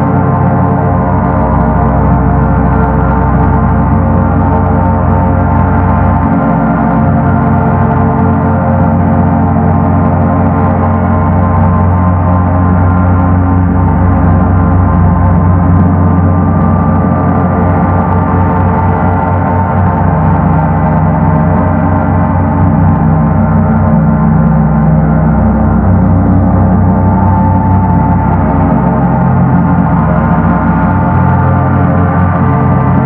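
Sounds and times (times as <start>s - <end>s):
gong rumbling drone: 0.0s - 33.0s.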